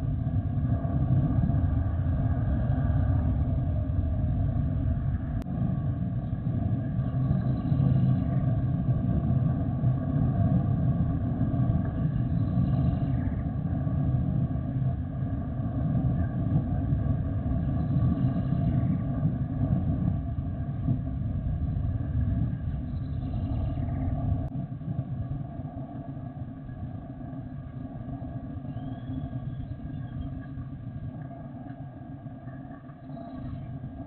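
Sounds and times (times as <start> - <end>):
faint steady whine: 0.0 - 34.0
jet engines rumbling: 0.0 - 34.0.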